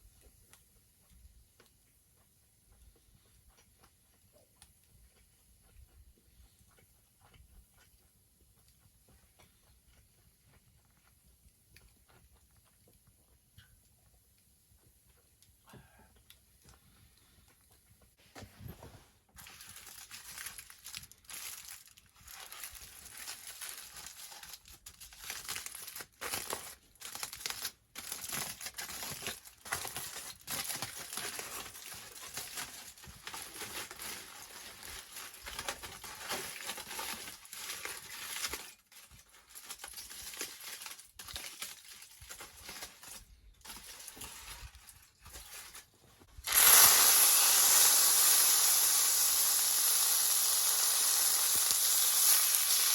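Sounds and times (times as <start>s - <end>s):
crinkling and rustling: 16.2s - 46.7s
food sizzling in a skillet: 46.4s - 52.9s.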